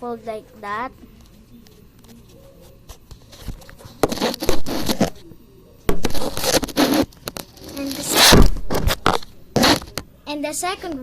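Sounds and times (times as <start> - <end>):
paper crinkling and scraping: 2.1 - 5.2, 6.0 - 10.0.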